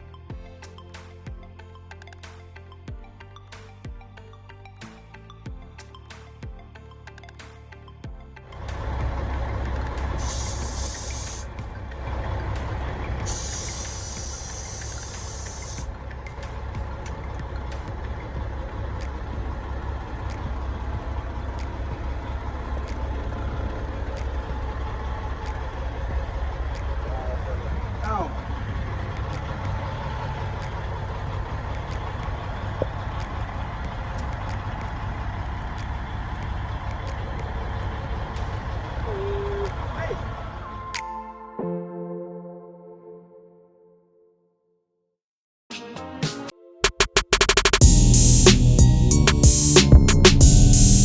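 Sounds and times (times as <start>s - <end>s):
diesel engine idling: 8.5s - 40.9s, 47.8s - 51.0s
compressed air hiss: 10.2s - 11.5s, 13.2s - 15.9s.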